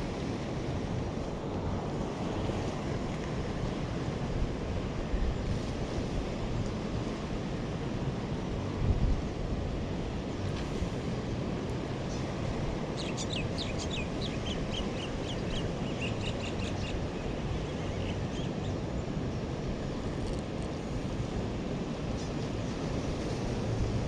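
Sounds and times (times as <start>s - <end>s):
wind: 0.0s - 24.0s
birds chirping: 13.0s - 18.5s.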